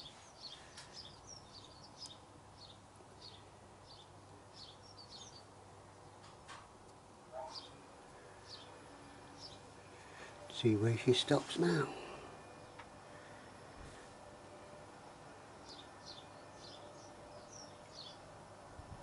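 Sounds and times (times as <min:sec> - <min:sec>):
faint small bird chirping: 0:00.0 - 0:05.5, 0:15.6 - 0:18.3.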